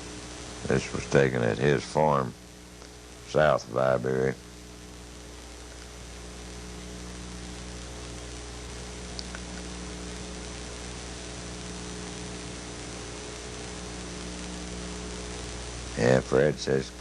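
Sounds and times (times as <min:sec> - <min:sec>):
electrical mains hum: 0:00.0 - 0:17.0
recording hiss: 0:00.0 - 0:17.0
faint click: 0:09.1 - 0:09.7.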